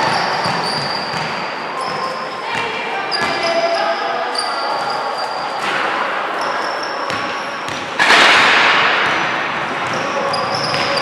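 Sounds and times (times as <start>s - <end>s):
shoes squeaking on court: 0.0s - 5.8s, 6.4s - 8.0s, 9.8s - 11.0s.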